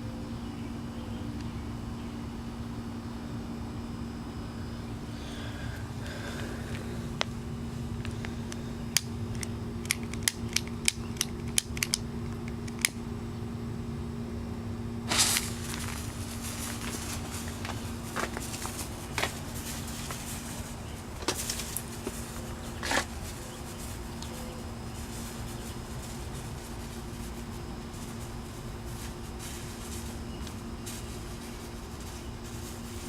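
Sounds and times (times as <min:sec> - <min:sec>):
steady low hum: 0:00.0 - 0:33.0
sharp clicks: 0:08.9 - 0:13.0
scattered crackles: 0:15.1 - 0:33.0.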